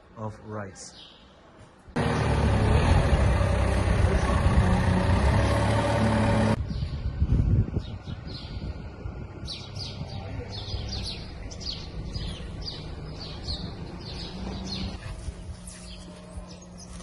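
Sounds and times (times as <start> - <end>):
truck engine running: 2.0 - 6.6
birds chirping: 7.7 - 17.0.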